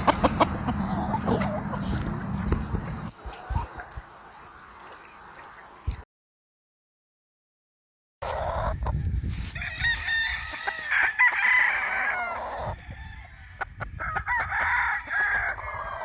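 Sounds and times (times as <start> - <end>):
roosters crowing: 0.0 - 3.1, 9.4 - 16.0
chicken clucking: 0.0 - 4.0.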